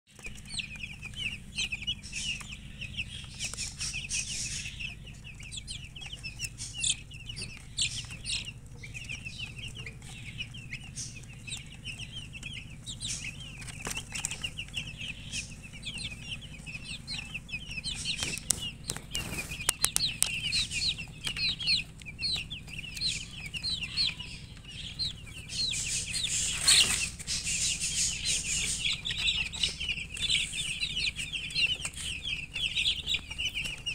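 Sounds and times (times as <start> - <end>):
chicks peeping: 0.1 - 33.9
rustling: 13.1 - 23.1, 25.4 - 30.8.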